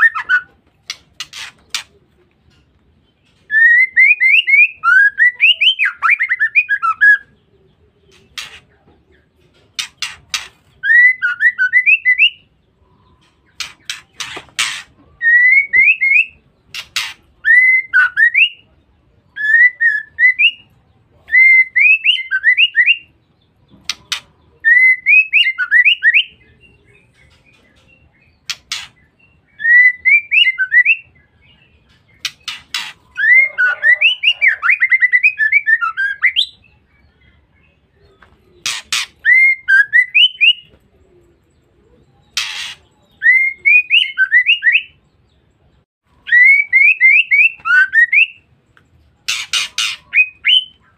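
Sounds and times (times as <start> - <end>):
bird twittering calls: 0.0 - 18.4, 21.8 - 45.5, 49.2 - 50.9.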